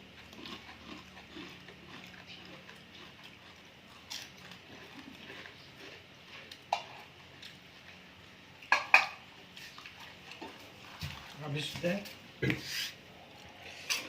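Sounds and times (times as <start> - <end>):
tableware clinking: 8.7 - 9.2.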